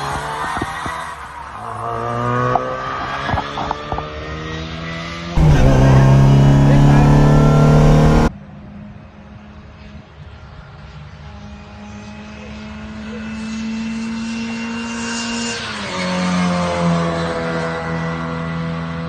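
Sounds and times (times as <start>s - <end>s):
rally car engine running: 5.4s - 8.3s.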